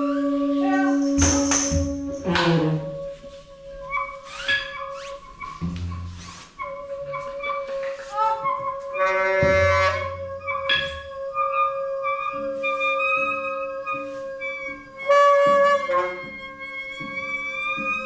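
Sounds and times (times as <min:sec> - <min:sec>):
wind instruments improvising: 0:00.0 - 0:18.0.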